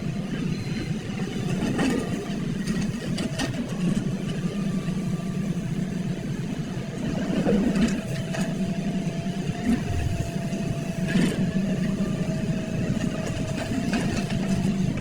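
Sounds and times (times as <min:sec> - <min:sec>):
diesel engine running: 0:00.0 - 0:15.0
thin steady whine: 0:09.6 - 0:10.8.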